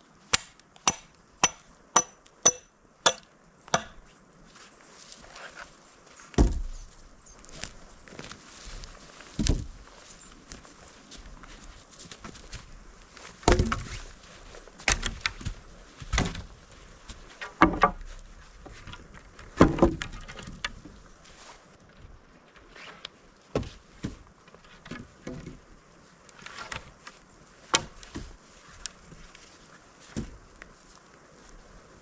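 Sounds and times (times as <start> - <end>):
faint steady background noise: 0.0 - 32.0
irregular knocks and crunches: 6.3 - 21.0.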